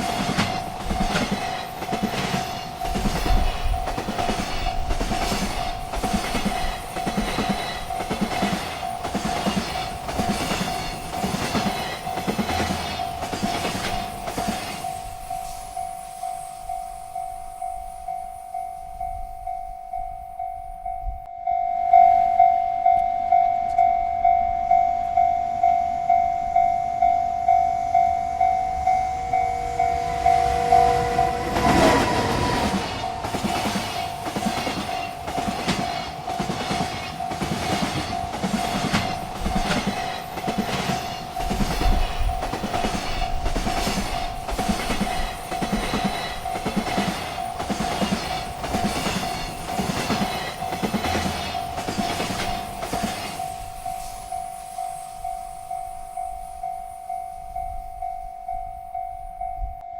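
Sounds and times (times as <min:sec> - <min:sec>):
freight train wagons clattering: 0:00.0 - 0:16.2, 0:28.4 - 0:55.9
railroad crossing bell ringing: 0:00.0 - 0:59.9.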